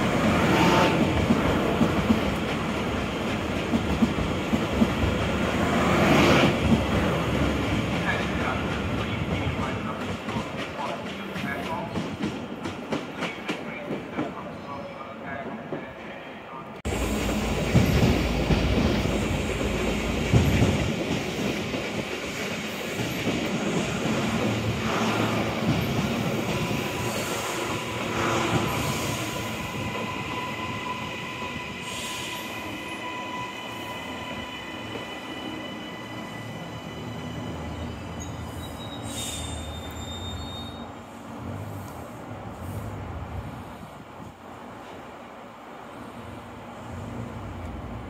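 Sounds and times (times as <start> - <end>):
train rumbling on rails: 0.0 - 48.0
thin high squeals: 36.0 - 40.9.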